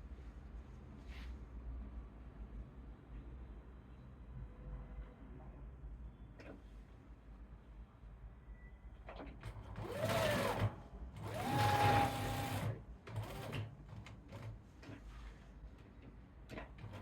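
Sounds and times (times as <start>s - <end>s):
sewing machine stitching: 9.5s - 14.6s.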